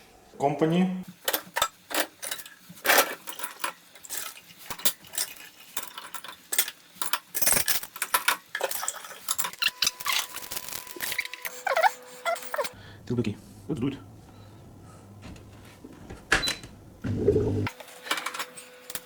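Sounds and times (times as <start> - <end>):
dishes and cutlery clinking: 1.2 - 9.6.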